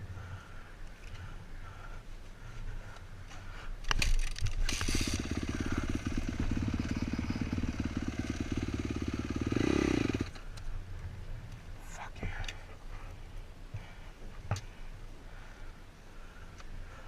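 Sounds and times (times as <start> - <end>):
kickstart clatters: 3.9 - 6.0
dirt bike engine running: 4.4 - 10.4.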